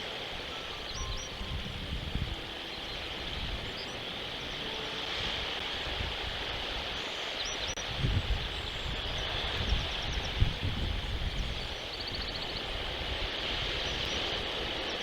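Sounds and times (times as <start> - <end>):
steady outdoor hiss: 0.0 - 15.0
wind rumbling on microphone: 0.0 - 15.0
faint bird chirps: 0.5 - 5.3.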